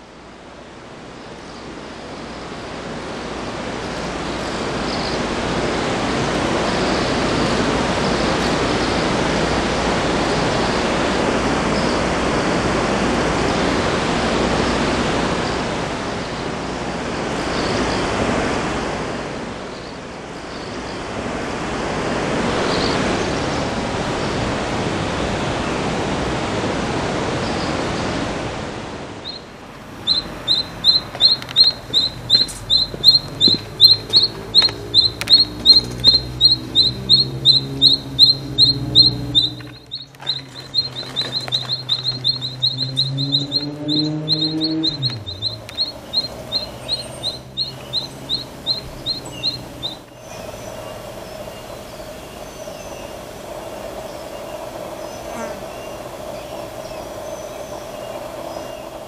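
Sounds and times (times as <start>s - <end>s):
steady rushing noise: 21.1s - 59.0s
bird calling fast short chirps: 29.2s - 59.0s
faint high bird chirps: 29.2s - 59.0s.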